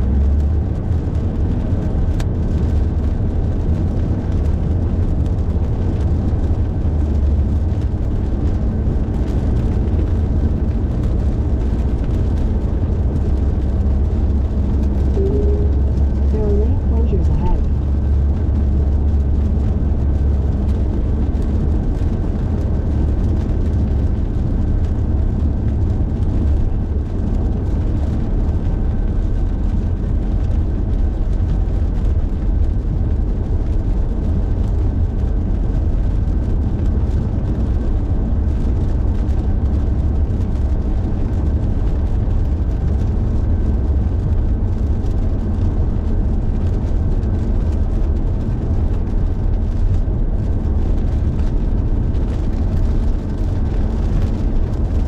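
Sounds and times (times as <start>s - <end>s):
car road and engine rumble: 0.0s - 55.0s
faint steady whine: 14.7s - 18.0s.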